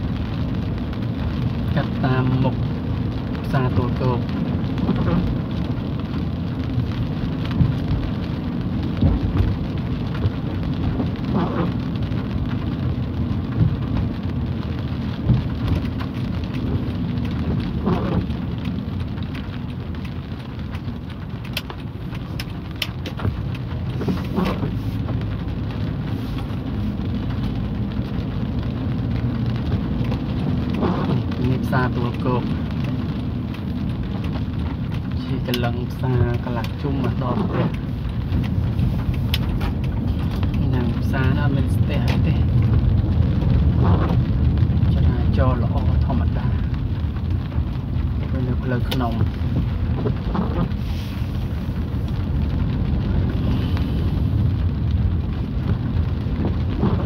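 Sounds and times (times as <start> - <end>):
car rumble: 0.0 - 57.0
light rain: 0.0 - 57.0
tyres on a wet road: 0.0 - 57.0.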